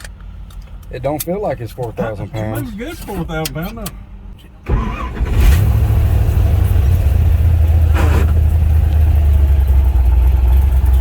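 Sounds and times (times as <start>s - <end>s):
truck engine idling: 4.0s - 11.0s.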